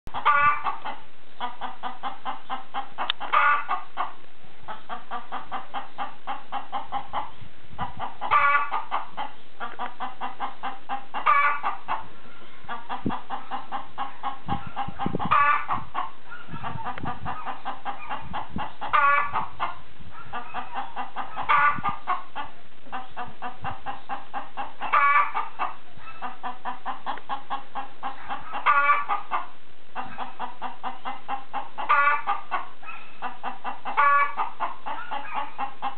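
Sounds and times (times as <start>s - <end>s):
chicken high call: 0.1s - 0.9s, 3.3s - 3.8s, 8.2s - 9.0s, 11.2s - 18.2s, 18.9s - 22.2s, 24.8s - 26.4s, 28.0s - 31.1s, 31.8s - 33.3s, 33.9s - 35.8s
chicken clucking: 0.1s - 35.9s.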